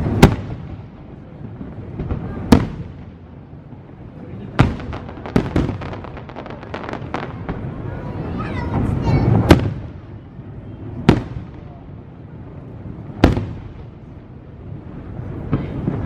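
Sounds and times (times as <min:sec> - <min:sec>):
crackling firework pops: 0:00.0 - 0:03.2, 0:04.5 - 0:07.7, 0:09.4 - 0:09.9, 0:11.1 - 0:11.7, 0:13.2 - 0:13.9
low rolling rumble: 0:00.0 - 0:16.0
firework shells bursting with bangs: 0:04.4 - 0:07.7.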